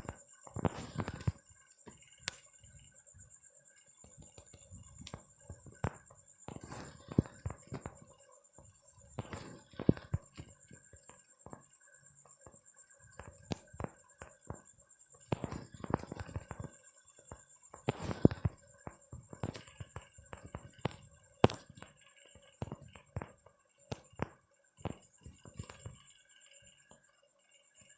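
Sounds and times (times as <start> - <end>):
faint high whine: 0.0 - 27.9
irregular clicks and knocks: 9.2 - 26.2.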